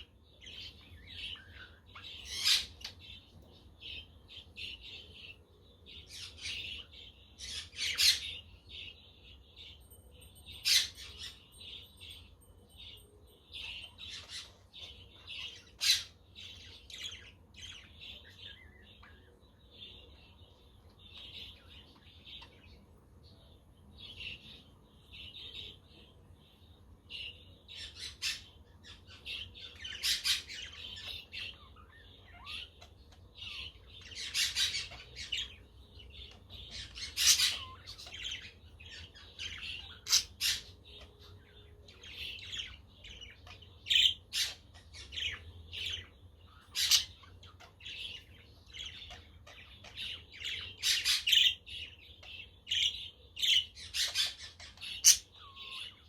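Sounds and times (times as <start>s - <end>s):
budgerigars chattering and chirping: 0.0s - 12.0s, 13.0s - 56.0s
sharp bird calls: 27.3s - 56.0s.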